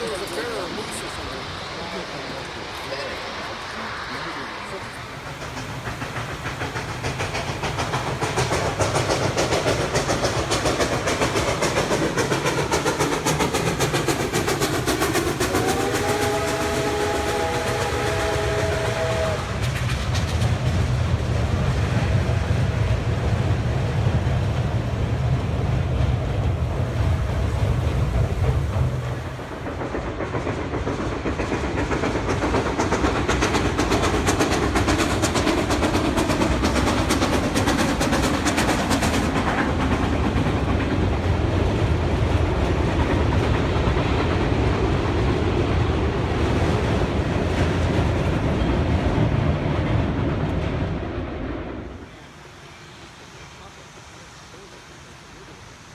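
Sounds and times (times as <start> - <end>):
train wheels rumbling on rails: 0.0 - 55.9
steam whistle blast: 15.5 - 19.6.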